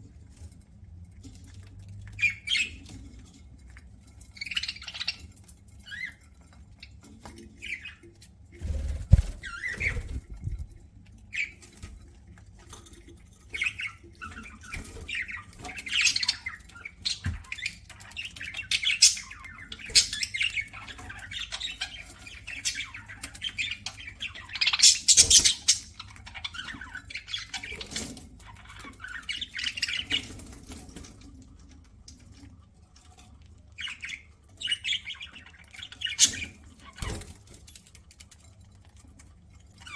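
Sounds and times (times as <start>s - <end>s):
budgerigars chirping and squawking: 1.3s - 3.4s, 4.1s - 10.7s, 11.3s - 12.0s, 13.3s - 32.4s, 33.1s - 38.0s.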